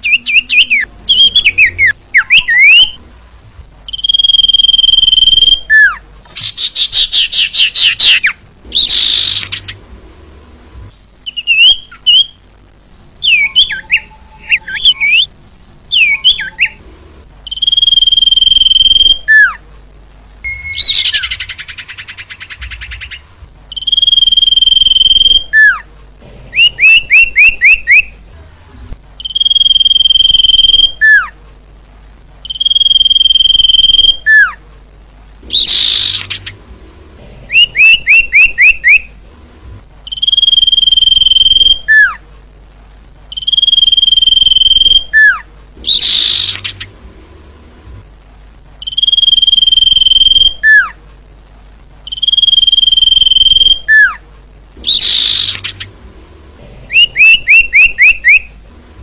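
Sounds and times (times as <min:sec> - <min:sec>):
bird whistling and singing: 0:00.0 - 0:03.0, 0:03.9 - 0:09.7, 0:11.2 - 0:12.4, 0:13.2 - 0:15.3, 0:15.9 - 0:16.8, 0:17.5 - 0:19.6, 0:20.4 - 0:25.8, 0:26.6 - 0:28.1, 0:29.2 - 0:31.3, 0:32.5 - 0:34.6, 0:35.5 - 0:36.5, 0:37.5 - 0:39.1, 0:40.1 - 0:42.2, 0:43.3 - 0:46.9, 0:48.8 - 0:51.0, 0:52.1 - 0:54.2, 0:54.8 - 0:55.8, 0:56.9 - 0:58.5.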